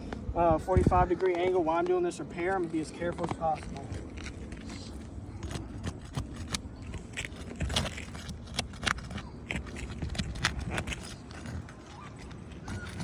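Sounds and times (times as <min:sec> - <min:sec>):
tool scraping shingles: 0:02.6 - 0:13.0.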